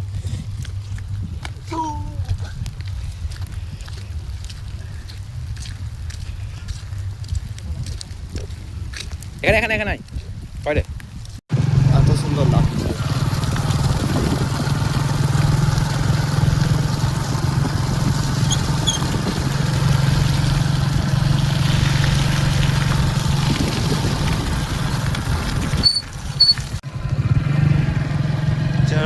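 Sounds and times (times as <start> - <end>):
vehicle engine running: 11.5 - 29.0.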